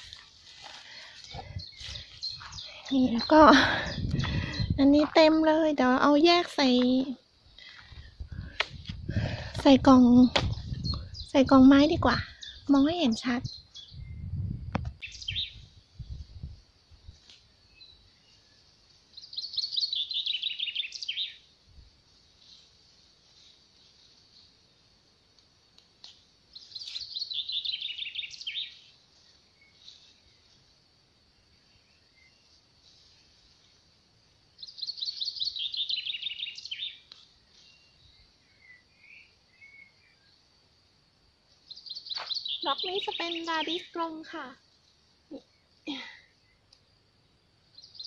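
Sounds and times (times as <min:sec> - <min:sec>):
songbird trill: 0:00.0 - 0:08.1, 0:09.6 - 0:48.0
soft low thumps: 0:03.4 - 0:05.2
faint bird chirps: 0:10.0 - 0:16.5, 0:17.6 - 0:21.5, 0:26.5 - 0:30.7, 0:31.4 - 0:33.7, 0:34.6 - 0:40.5, 0:41.5 - 0:44.3, 0:45.2 - 0:46.8, 0:47.7 - 0:48.0
songbird trilling: 0:15.0 - 0:15.6, 0:19.2 - 0:21.4, 0:26.6 - 0:28.8, 0:34.6 - 0:37.0, 0:41.7 - 0:44.0.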